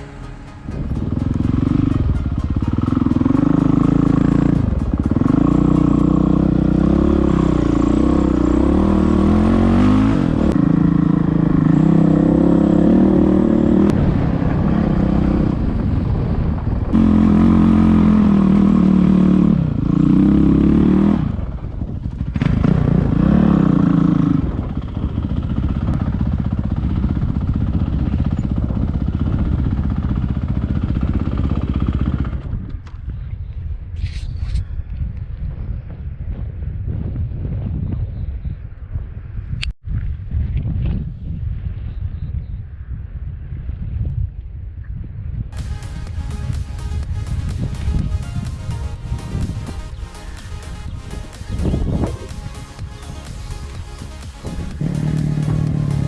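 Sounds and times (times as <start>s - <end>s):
motorcycle engine revving: 0.0s - 15.5s, 17.0s - 32.4s, 45.6s - 56.0s.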